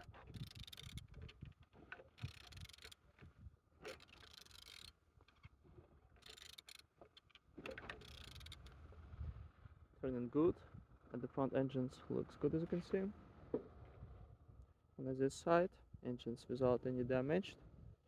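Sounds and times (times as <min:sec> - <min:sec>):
engine turned by hand clicking: 0:00.0 - 0:01.2, 0:02.2 - 0:03.0, 0:06.2 - 0:08.7.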